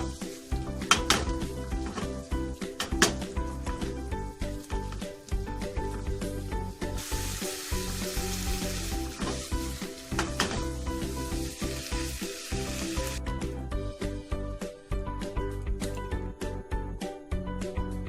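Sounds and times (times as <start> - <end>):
noodles sizzling in a pan: 0.0 - 13.2
background music: 0.0 - 18.0.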